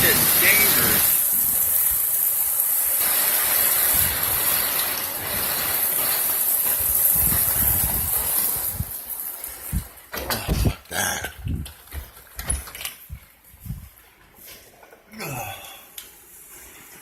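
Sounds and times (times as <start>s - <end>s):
heavy rain pouring: 0.0s - 14.1s.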